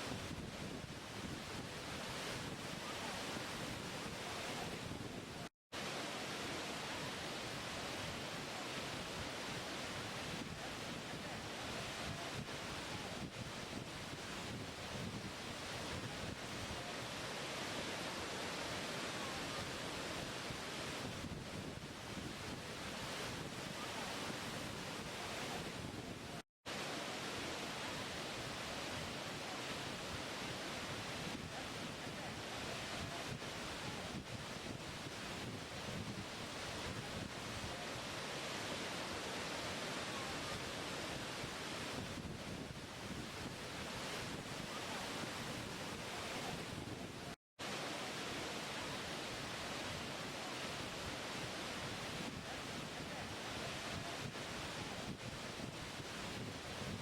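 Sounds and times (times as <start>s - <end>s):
waterfall rushing: 5.8s - 13.3s, 15.4s - 21.1s, 26.7s - 35.4s, 36.4s - 42.0s, 43.8s - 46.7s, 47.6s - 55.0s.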